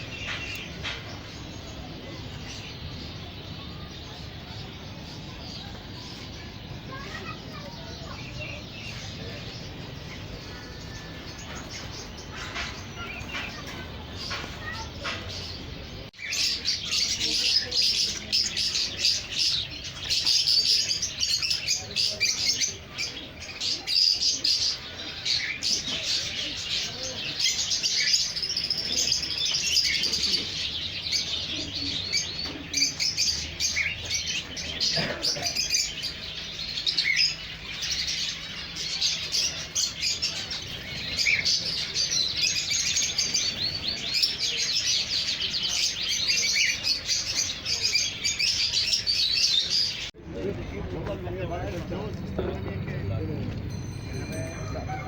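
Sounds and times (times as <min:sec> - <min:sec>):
caged songbirds chirping: 0:00.0 - 0:55.0.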